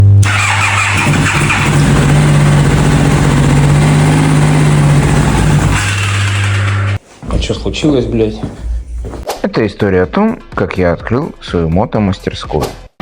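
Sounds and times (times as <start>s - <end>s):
motorcycle engine running: 0.2s - 7.0s.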